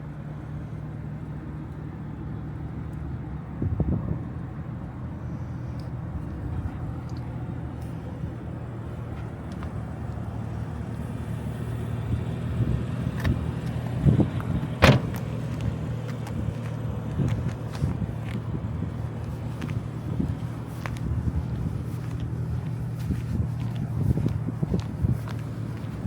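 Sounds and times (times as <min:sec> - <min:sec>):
car engine humming: 0:00.0 - 0:26.0
sharp knocks: 0:14.8 - 0:15.3.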